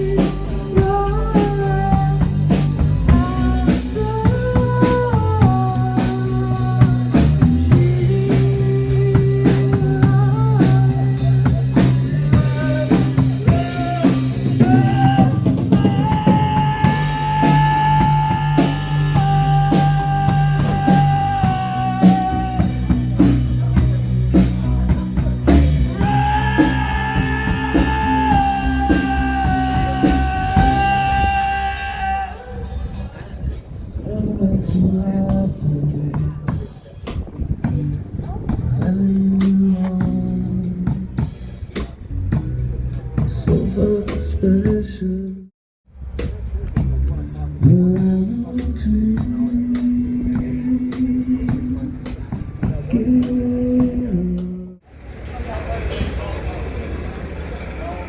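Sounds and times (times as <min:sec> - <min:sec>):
rock music: 0:00.0 - 0:33.2, 0:35.4 - 0:44.8
electric guitar long notes: 0:12.3 - 0:23.8, 0:24.7 - 0:32.6.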